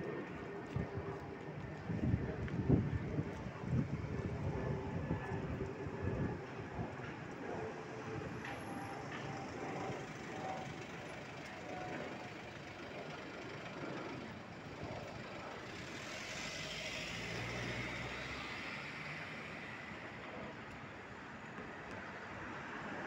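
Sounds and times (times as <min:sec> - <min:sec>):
city traffic noise: 0:00.0 - 0:23.0
tyre hiss of passing vehicle: 0:15.0 - 0:20.6.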